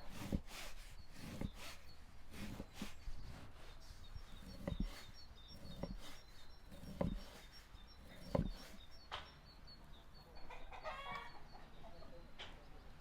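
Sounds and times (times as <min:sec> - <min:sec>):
faint high chirping: 0:00.8 - 0:13.0.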